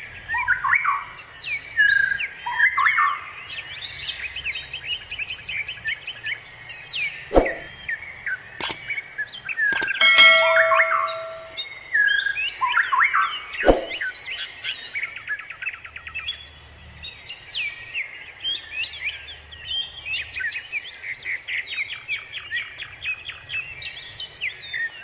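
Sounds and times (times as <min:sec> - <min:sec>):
songbirds chirping and trilling: 0:00.0 - 0:25.0
sharp click: 0:09.7 - 0:11.6.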